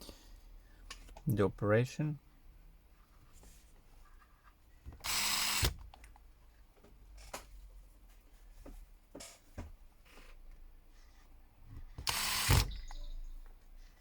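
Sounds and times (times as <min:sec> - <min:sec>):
small power tool whirring: 0:05.0 - 0:05.8, 0:12.0 - 0:12.9.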